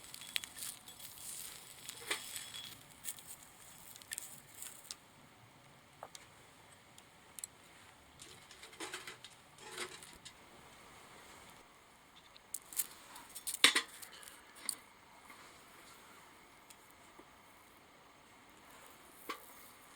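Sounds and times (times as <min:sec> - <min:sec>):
rustling: 0:00.0 - 0:05.0
small clicks and clatter: 0:00.1 - 0:05.0, 0:08.2 - 0:10.4.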